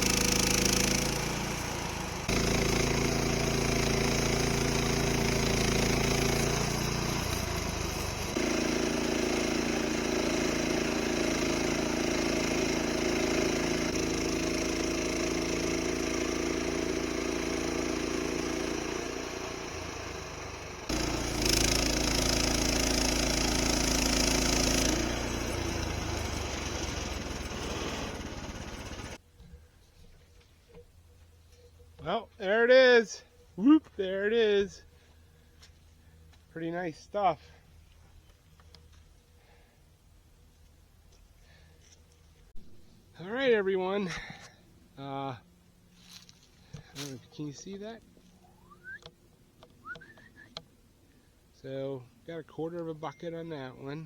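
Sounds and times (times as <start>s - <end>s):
saw blade cutting log: 0.0s - 29.2s
sawmill engine running: 0.0s - 29.2s.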